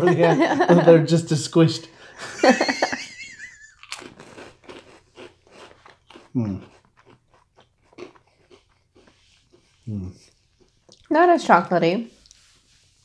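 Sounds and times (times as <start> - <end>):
biscuits crunching while chewed: 3.7 - 11.1.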